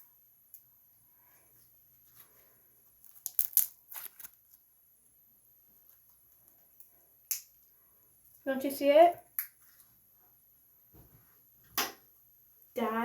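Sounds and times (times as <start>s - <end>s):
slime squeezed with crackling pops: 3.0s - 4.4s.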